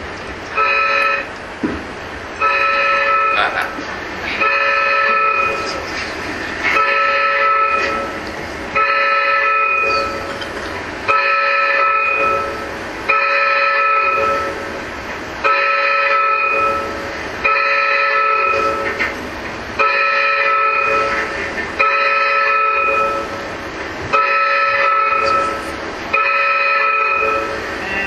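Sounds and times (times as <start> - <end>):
horn-like alarm blasts: 0.6 - 1.3, 2.4 - 3.5, 4.4 - 5.8, 6.8 - 8.2, 8.8 - 10.3, 11.1 - 14.6, 15.4 - 19.0, 19.8 - 23.4, 24.1 - 28.0.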